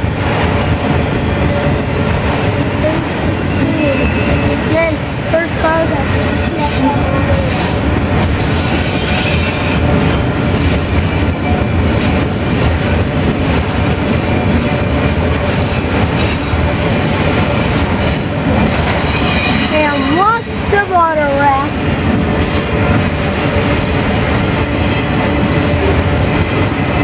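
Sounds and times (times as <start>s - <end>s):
train wheel rumble on rails: 0.0s - 27.0s
wheel squeal: 18.8s - 20.2s, 23.4s - 26.0s.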